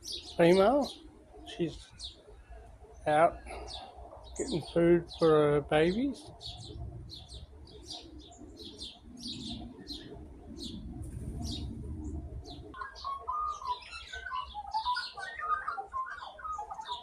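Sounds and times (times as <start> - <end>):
birds chirping: 0.0 - 17.0
lower chattering bird call: 0.0 - 17.0.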